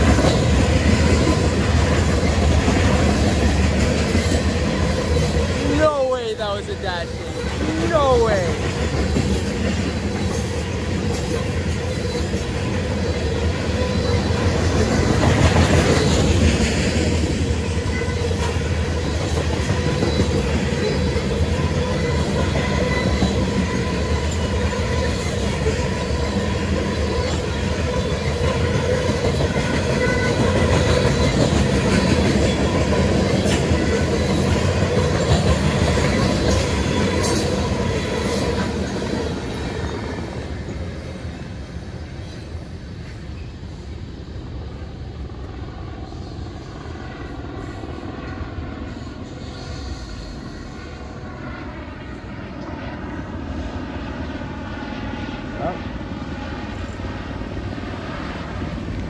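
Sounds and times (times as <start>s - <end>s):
wheels rumbling on rail: 0.0s - 59.0s
ringing wheel squeal: 11.8s - 14.6s.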